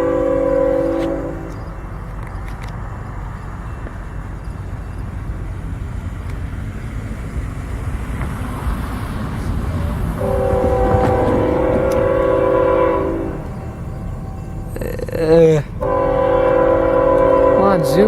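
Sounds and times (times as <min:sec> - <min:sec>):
locomotive horn chord: 0:00.0 - 0:02.0, 0:09.8 - 0:18.0
train rumbling: 0:00.0 - 0:18.0.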